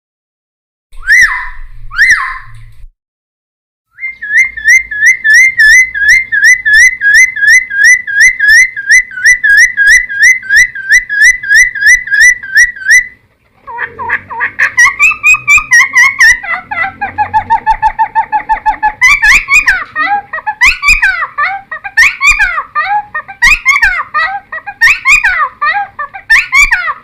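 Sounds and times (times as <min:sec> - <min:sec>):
bird singing whistled notes: 0:03.9 - 0:13.2.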